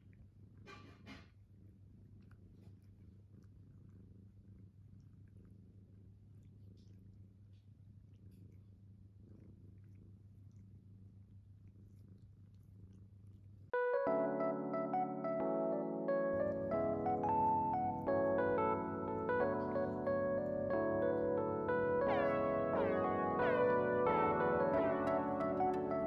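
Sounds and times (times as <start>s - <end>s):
cat purring: 0.0s - 26.0s
piano music: 13.8s - 26.0s.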